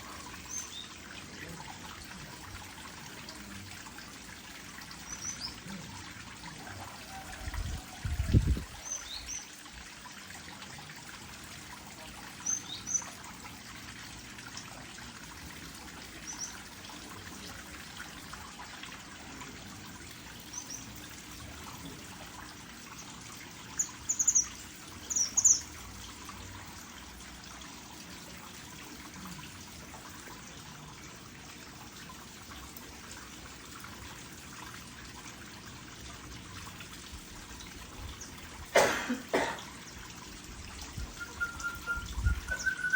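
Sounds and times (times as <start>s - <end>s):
small birds chirping: 16.2s - 16.6s, 23.8s - 25.8s.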